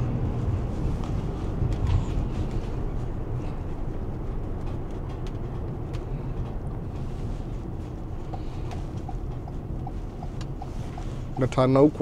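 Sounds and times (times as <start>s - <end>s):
engine and road rumble: 0.0s - 12.0s
light regular ticking: 7.6s - 12.0s.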